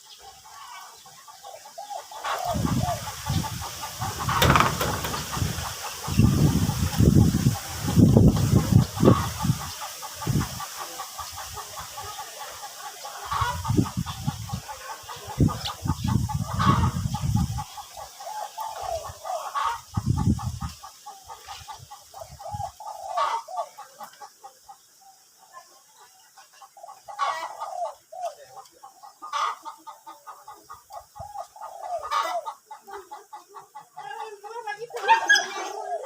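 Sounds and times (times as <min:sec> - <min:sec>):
low rumbling bumps: 0:03.3 - 0:07.2.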